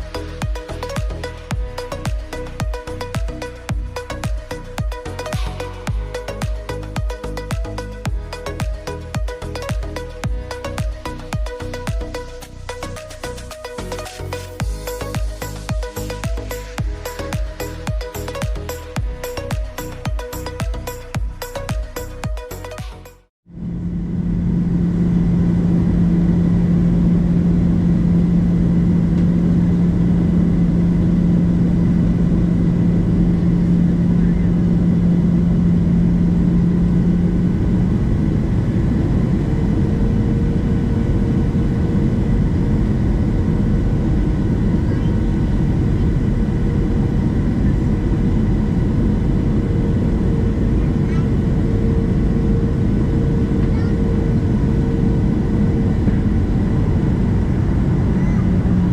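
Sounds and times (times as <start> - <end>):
low steady hum: 0.0 - 22.7, 23.5 - 58.9
higher steady hum: 0.0 - 58.9
jet engine and airflow rumble: 23.5 - 58.9.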